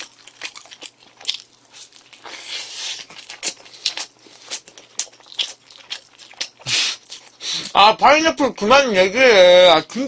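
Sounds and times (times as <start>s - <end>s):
chewing and biting burger: 0.0s - 7.7s
breathy hiss: 6.6s - 7.8s.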